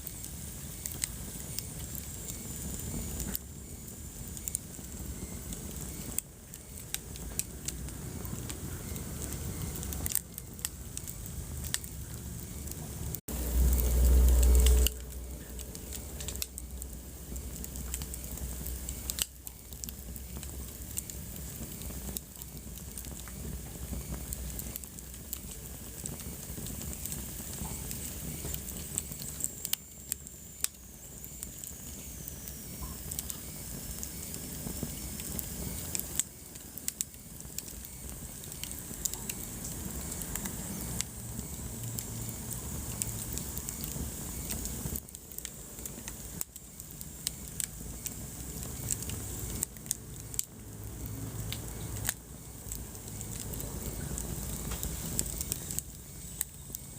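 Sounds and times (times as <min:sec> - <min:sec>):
wood fire crackling and popping: 0:00.0 - 0:56.9
deep low rumble: 0:10.8 - 0:19.2.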